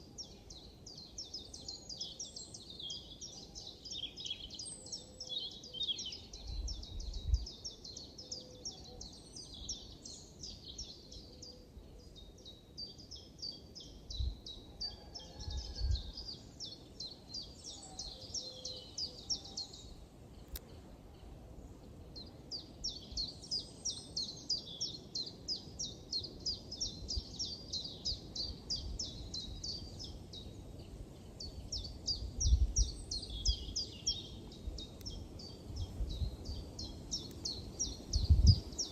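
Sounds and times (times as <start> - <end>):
wind rumble on microphone: 6.4 - 7.8, 14.1 - 14.6, 15.3 - 16.3, 26.8 - 38.9.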